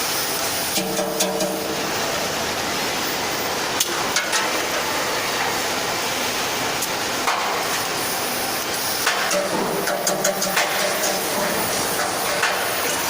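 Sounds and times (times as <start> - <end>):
welding arc hissing and crackling: 0.0 - 13.0.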